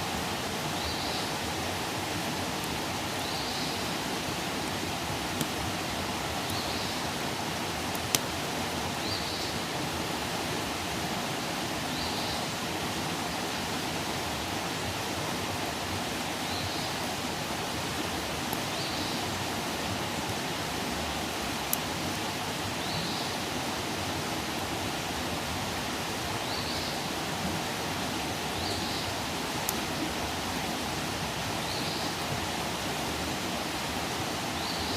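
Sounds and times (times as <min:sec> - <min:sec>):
campfire burning with pops: 0:04.5 - 0:06.8, 0:07.6 - 0:08.7, 0:21.5 - 0:21.9, 0:29.6 - 0:29.9.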